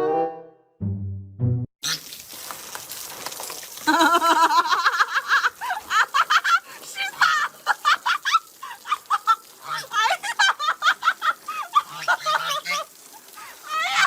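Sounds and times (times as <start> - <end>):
chickens squawking clucks: 11.3 - 14.0.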